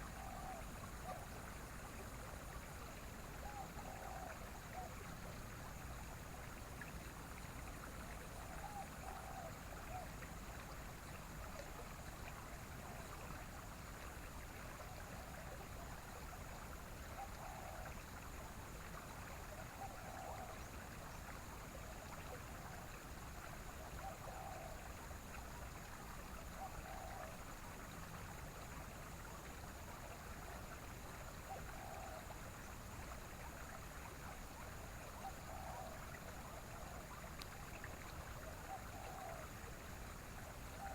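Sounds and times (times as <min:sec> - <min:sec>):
stream running: 0:00.0 - 0:40.9.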